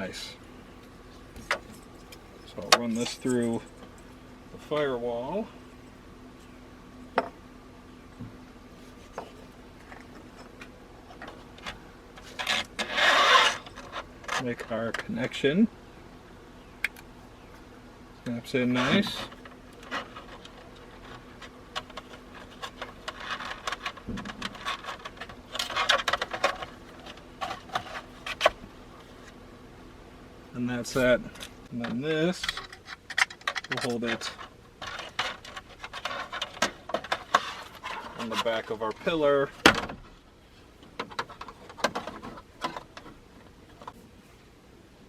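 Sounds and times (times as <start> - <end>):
wiring and plastic parts rustling: 0.8 - 5.4, 8.8 - 15.4, 18.2 - 29.4, 30.8 - 44.2
rustling scrape: 12.2 - 14.5, 34.1 - 39.0.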